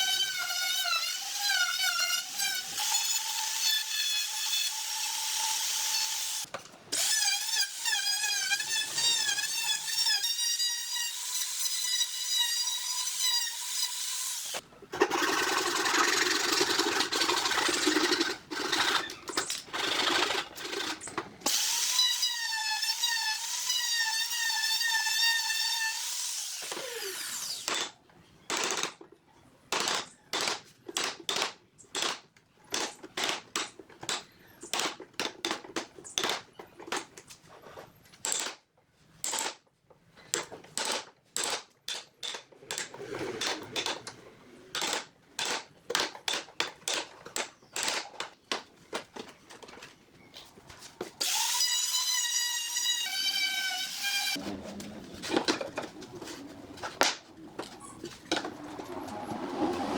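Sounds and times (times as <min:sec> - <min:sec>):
drill grinding into wood: 0:07.0 - 0:27.9, 0:51.2 - 0:54.4.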